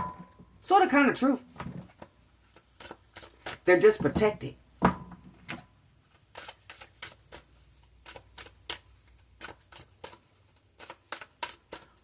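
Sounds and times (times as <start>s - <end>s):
cards being shuffled: 1.9s - 3.7s, 6.0s - 12.0s.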